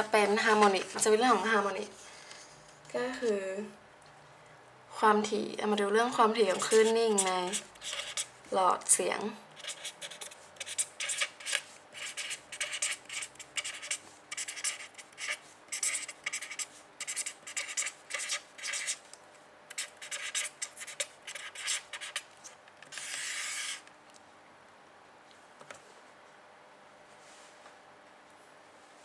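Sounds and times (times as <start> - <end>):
pen scratching on paper: 6.5 - 8.3, 9.6 - 19.0, 19.7 - 22.3, 22.9 - 23.8.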